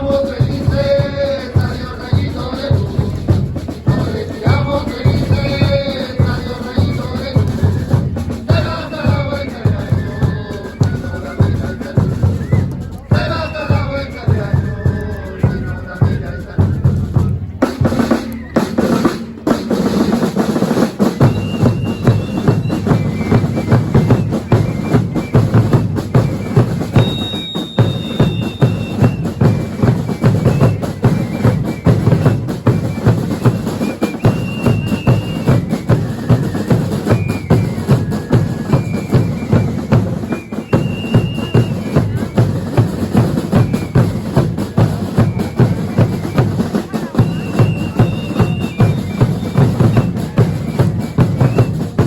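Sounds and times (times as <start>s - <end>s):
bass drum and snare beating: 0.0s - 52.0s
high whistle-like notes: 18.0s - 19.0s, 21.0s - 51.9s.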